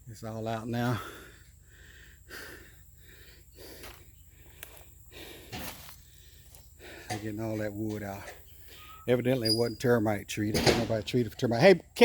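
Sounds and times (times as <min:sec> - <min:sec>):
person breathing heavily: 0:00.8 - 0:07.3.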